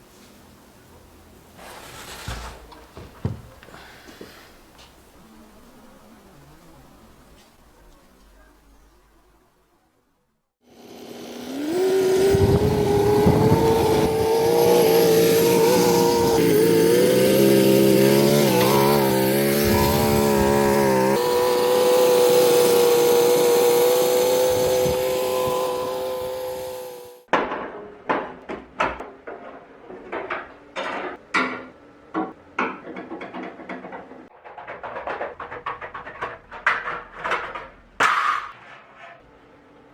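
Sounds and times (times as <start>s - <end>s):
model engine revving: 10.7s - 27.3s.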